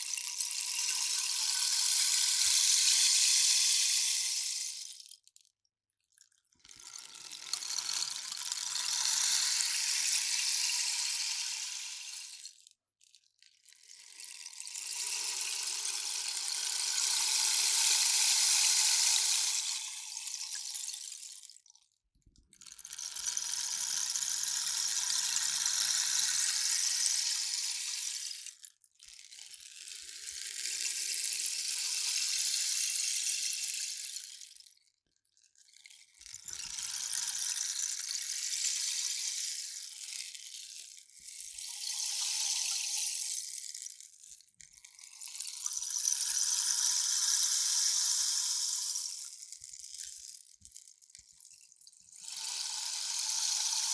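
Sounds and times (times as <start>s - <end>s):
rainstick trickling patter: 6.3s - 12.7s, 13.6s - 21.9s, 35.5s - 53.9s.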